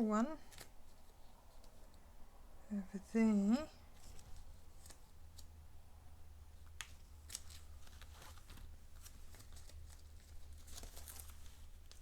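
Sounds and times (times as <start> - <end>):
low steady hum: 0.0 - 12.0
paper rustling: 3.9 - 5.5, 6.8 - 12.0.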